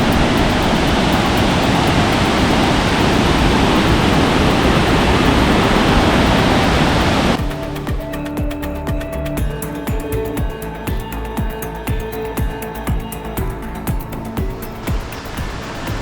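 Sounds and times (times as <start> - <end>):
waterfall rushing: 0.0 - 8.1
music: 0.0 - 16.0.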